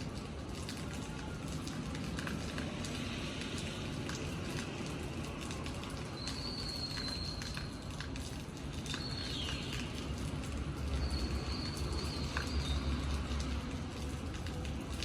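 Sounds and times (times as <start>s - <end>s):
rain dripping: 0.0s - 15.0s.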